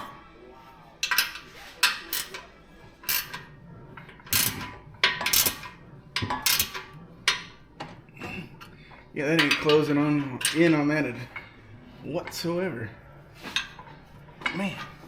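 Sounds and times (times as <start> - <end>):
ratchet wrench clicking: 3.1 - 3.4, 4.3 - 5.7, 6.5 - 6.8.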